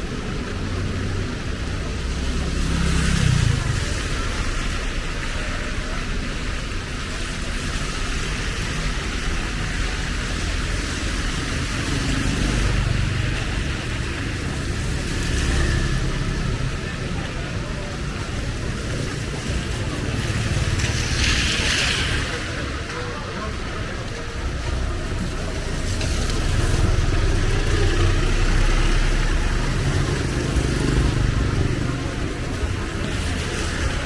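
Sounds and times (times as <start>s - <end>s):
cars and motorbikes passing: 0.0s - 34.0s
rain hiss: 23.5s - 34.0s.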